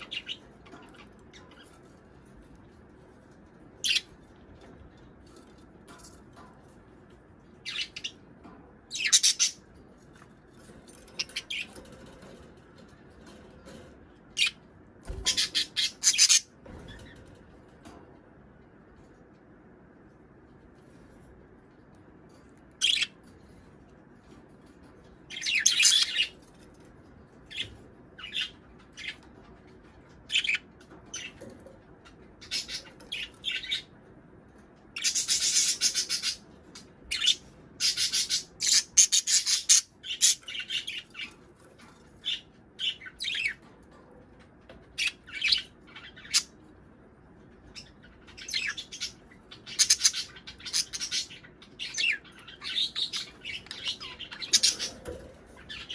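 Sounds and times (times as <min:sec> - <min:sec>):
budgerigars chirping: 0:08.9 - 0:09.6, 0:14.4 - 0:16.5, 0:25.3 - 0:26.4, 0:32.4 - 0:33.9, 0:35.0 - 0:36.4, 0:37.1 - 0:41.3, 0:47.7 - 0:55.0.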